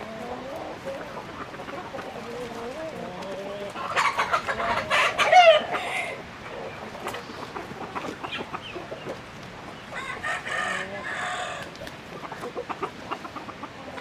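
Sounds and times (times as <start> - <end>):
chickens clucking: 0.0 - 14.0
rooster crowing: 9.9 - 11.7.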